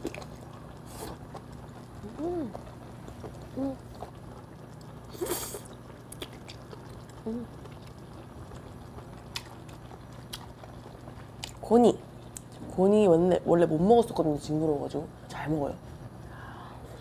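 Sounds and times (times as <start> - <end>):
chewing octopus: 0.0 - 11.6
closed-mouth hums: 0.0 - 11.6.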